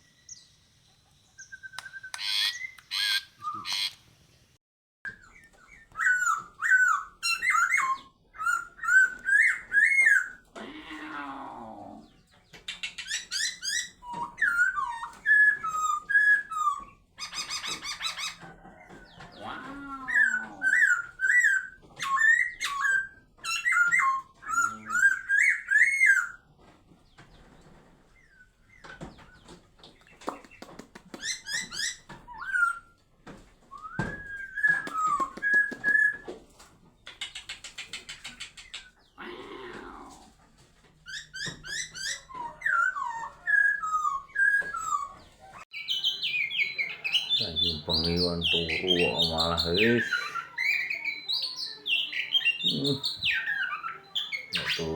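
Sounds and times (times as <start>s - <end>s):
songbird whistling: 1.3s - 4.0s, 5.1s - 10.4s, 33.7s - 36.3s, 41.2s - 54.9s
rough low bird calls: 5.2s - 26.5s, 37.1s - 40.5s, 47.0s - 51.0s, 52.4s - 54.9s.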